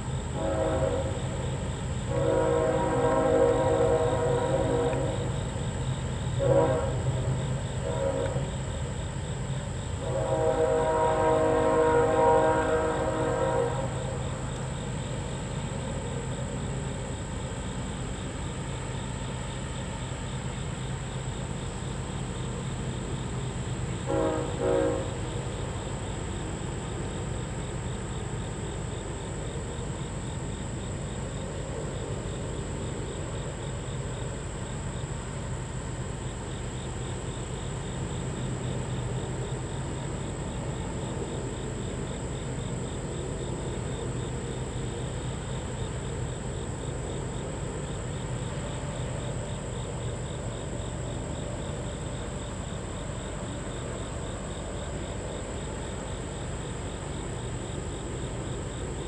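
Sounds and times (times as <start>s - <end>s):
train cars rumbling past: 0.0s - 59.0s
locomotive horn: 0.3s - 5.6s, 6.2s - 9.0s, 9.6s - 14.8s, 23.9s - 26.1s.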